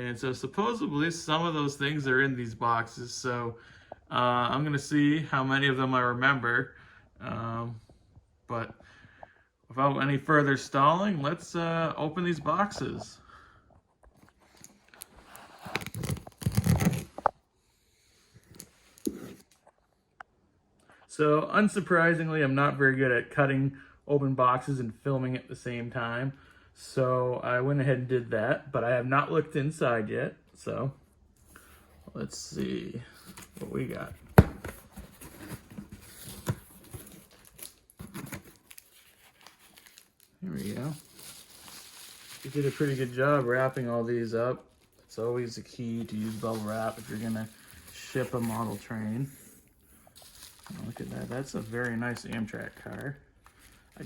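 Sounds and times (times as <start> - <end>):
packing material rustling: 14.3 - 17.4, 33.2 - 54.0
cardboard box being opened: 15.2 - 17.3, 33.2 - 43.8, 46.0 - 49.3, 50.2 - 53.8.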